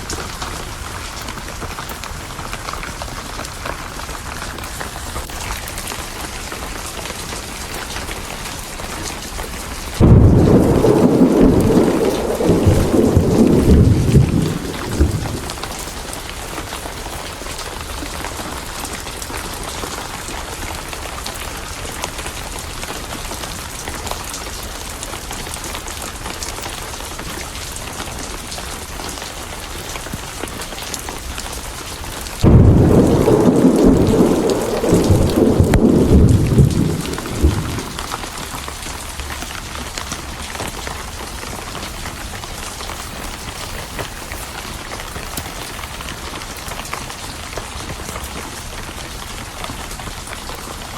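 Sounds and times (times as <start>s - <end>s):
steady rain: 0.0s - 50.9s
thunder rumbling: 9.7s - 16.7s, 32.4s - 39.3s.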